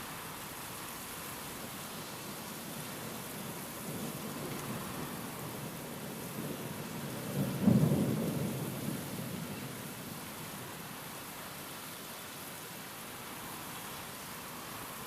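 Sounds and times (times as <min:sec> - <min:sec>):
rain hissing: 0:00.0 - 0:15.0
thunder rumble: 0:06.4 - 0:09.5.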